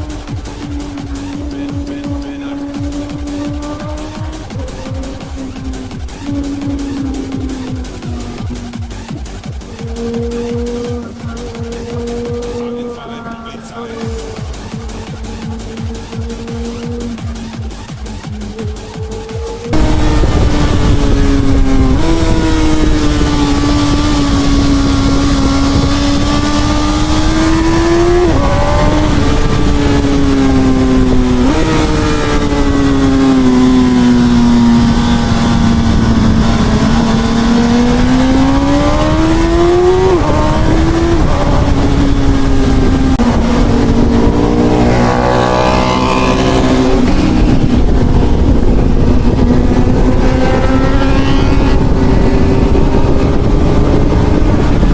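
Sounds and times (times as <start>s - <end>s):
motorcycle engine running: 0.0s - 54.9s
wind noise: 18.5s - 54.9s.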